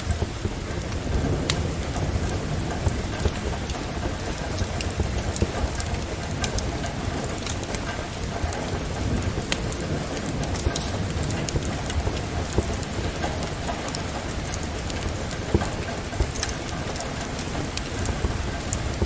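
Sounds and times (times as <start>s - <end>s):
steady rain: 0.0s - 19.0s
wood fire crackling and popping: 0.0s - 19.0s.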